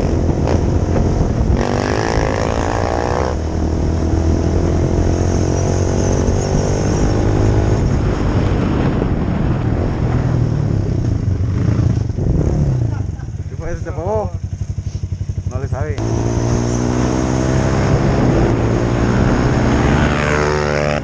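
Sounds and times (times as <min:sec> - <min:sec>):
motorcycle engine running: 0:10.6 - 0:21.0.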